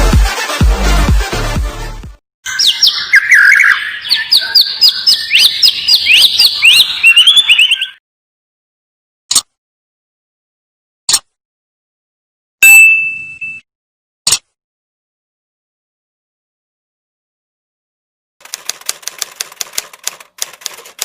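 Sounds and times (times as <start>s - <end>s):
sharp bird chirps: 2.4s - 8.0s, 12.6s - 13.6s
bird singing whistled notes: 2.5s - 8.0s
held bird whistle: 2.5s - 8.0s.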